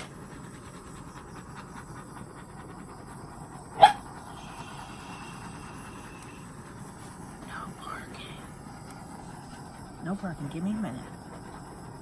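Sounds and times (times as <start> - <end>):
steady background hiss: 0.0 - 12.0
dog barking: 3.8 - 4.1.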